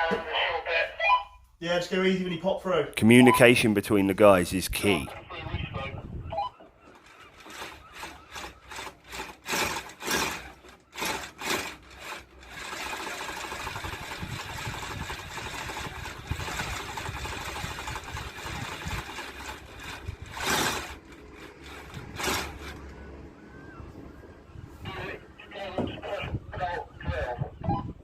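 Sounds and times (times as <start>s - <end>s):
power drill boring through stone: 7.0s - 22.9s.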